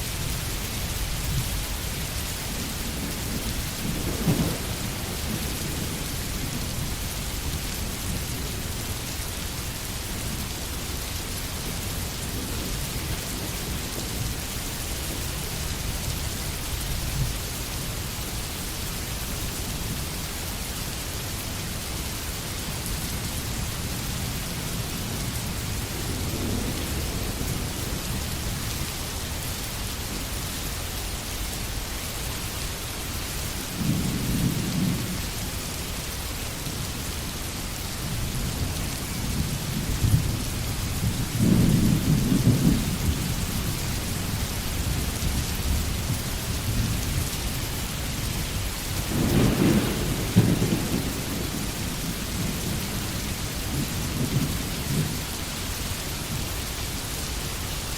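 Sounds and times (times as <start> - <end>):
steady rain falling: 0.0 - 57.9
thunder rumbling: 2.4 - 7.1, 38.5 - 47.4, 48.9 - 55.2.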